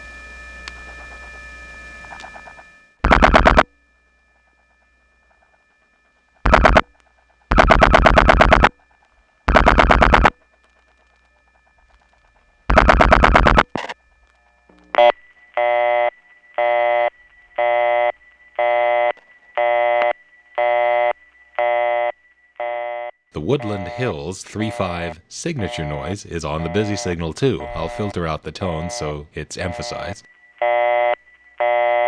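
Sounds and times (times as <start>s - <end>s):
thin steady line whine: 0.0s - 32.0s
dial-pulse clicking: 0.6s - 3.7s, 4.3s - 15.2s, 19.0s - 20.2s, 23.6s - 31.2s
busy signal beeping: 23.0s - 32.0s.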